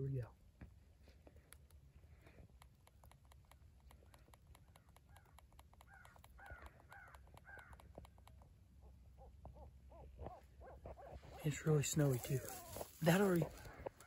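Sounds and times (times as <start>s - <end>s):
faint clicks: 1.2s - 8.6s
electronic crow caws: 5.1s - 7.9s.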